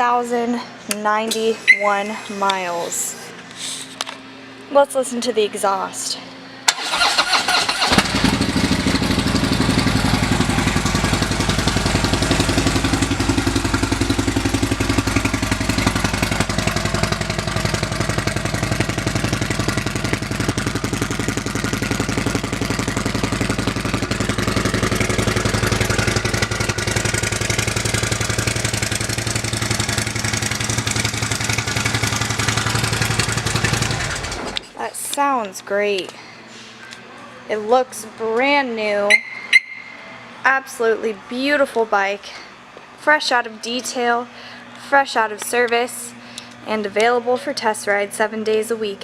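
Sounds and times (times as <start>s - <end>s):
motorcycle engine idling: 7.0s - 34.6s.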